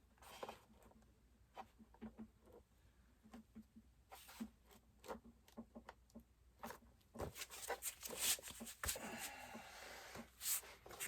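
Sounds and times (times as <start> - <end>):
plastic rubbing and scraping: 6.6 - 9.3.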